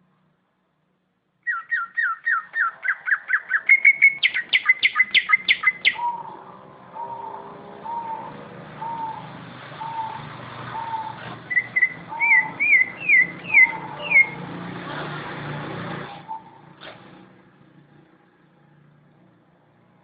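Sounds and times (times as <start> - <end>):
quick up-and-down bird chirps: 1.4 - 6.2, 10.8 - 14.4
bird low whistle: 1.5 - 14.4.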